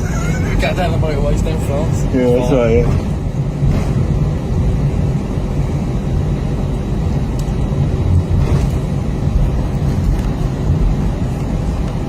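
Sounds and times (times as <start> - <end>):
jet engines low rumble in cabin: 0.0 - 12.0.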